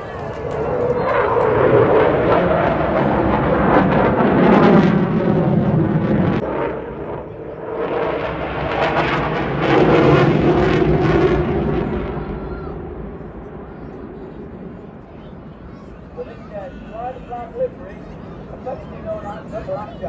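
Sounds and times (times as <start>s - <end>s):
jet fighter roaring: 0.0s - 15.4s.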